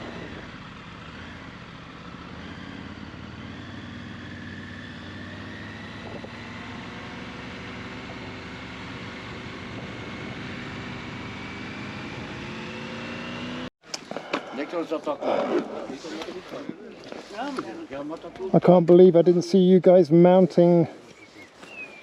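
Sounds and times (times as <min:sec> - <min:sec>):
motorcycle engine running: 0:00.0 - 0:13.7
road and wind noise: 0:00.0 - 0:22.0.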